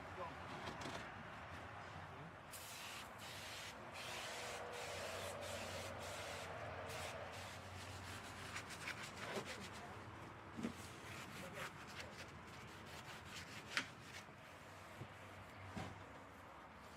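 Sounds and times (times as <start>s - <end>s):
spraying hiss: 2.5s - 7.6s.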